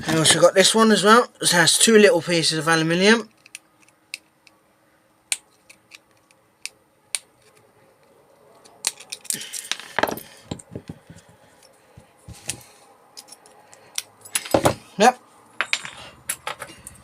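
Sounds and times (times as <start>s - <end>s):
metal parts and tool clinking: 8.6s - 10.8s, 12.4s - 14.8s, 15.6s - 17.0s.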